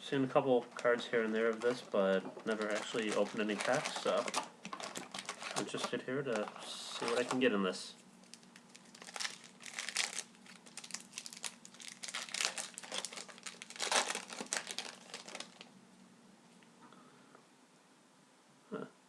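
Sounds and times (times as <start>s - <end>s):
plastic wrapper crinkling: 0.6s - 7.5s, 8.2s - 15.7s.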